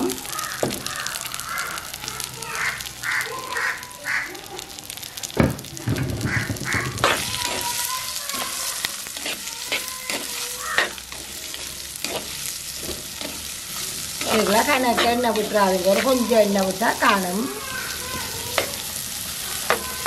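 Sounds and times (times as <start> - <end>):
vegetables sizzling in hot oil: 0.0 - 20.0
crows cawing: 0.1 - 4.5, 6.0 - 7.8, 10.5 - 11.0
heavy thump: 5.4 - 7.4
wooden spoon scraping a pot: 6.4 - 16.4.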